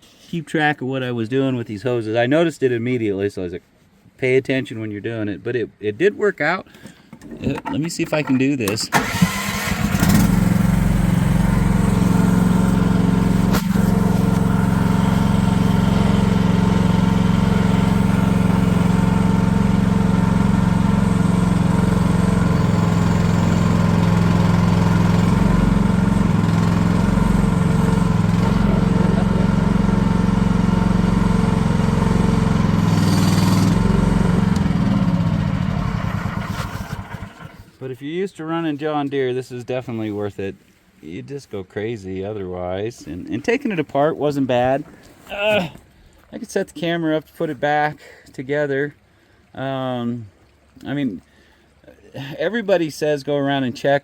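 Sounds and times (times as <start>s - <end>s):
small engine running: 8.9s - 37.7s.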